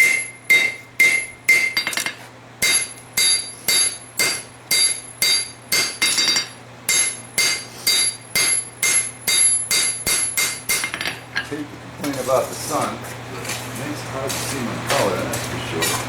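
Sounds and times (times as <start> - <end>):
hammer striking steel on anvil: 0.0 - 11.5.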